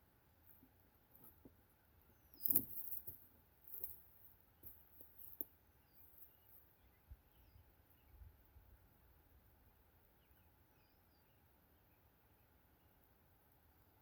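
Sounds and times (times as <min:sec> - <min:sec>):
faint bird chirps: 0:05.8 - 0:08.8, 0:09.6 - 0:14.0.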